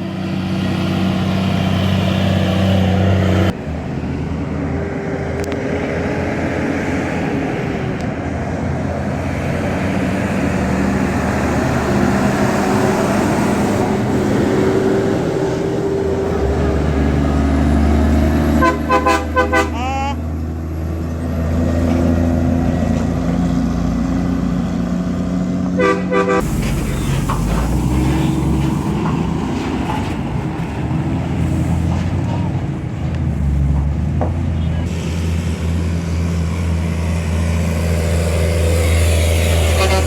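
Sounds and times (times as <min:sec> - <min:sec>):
road noise: 0:00.0 - 0:40.0
vehicle engine hum: 0:00.0 - 0:40.0
short horn toots: 0:18.6 - 0:20.0, 0:25.8 - 0:27.2, 0:39.7 - 0:40.0.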